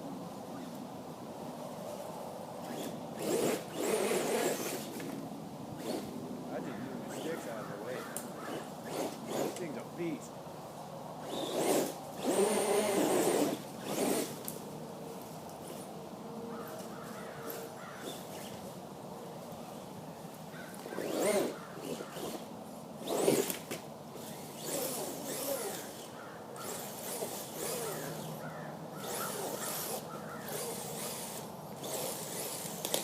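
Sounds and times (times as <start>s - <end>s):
electric motor whining: 2.6s - 5.2s, 11.2s - 14.5s, 20.8s - 28.4s, 29.0s - 33.0s.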